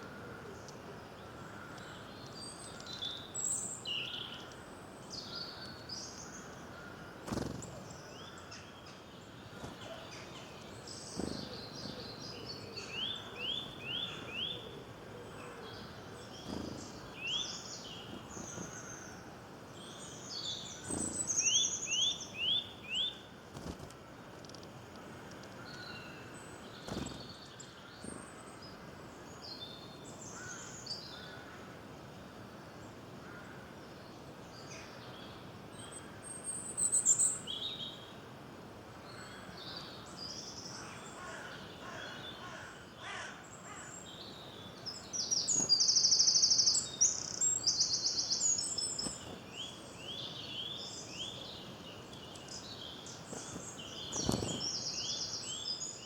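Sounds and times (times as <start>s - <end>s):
songbirds chirping and singing: 0.0s - 23.3s, 39.2s - 56.0s
outdoor background hiss: 0.0s - 56.0s.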